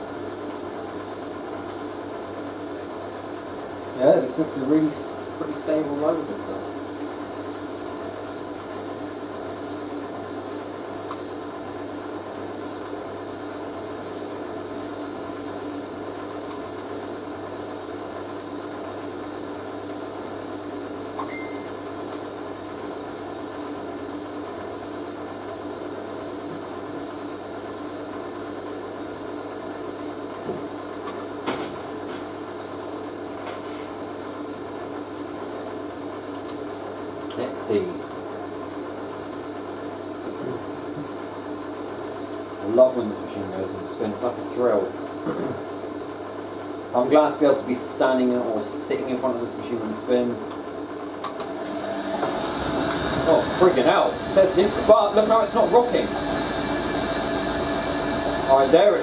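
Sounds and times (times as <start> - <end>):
washing machine motor hum: 50.7 - 59.0.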